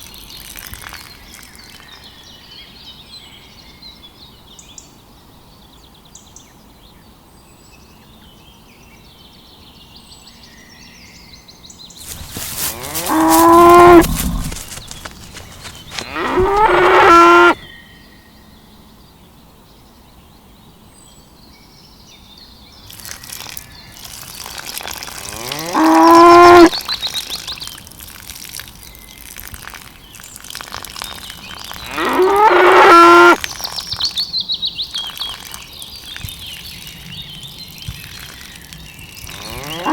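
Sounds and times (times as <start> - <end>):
cow mooing: 12.1 - 14.6, 16.0 - 17.6, 25.2 - 26.8, 31.8 - 33.4, 39.3 - 39.9.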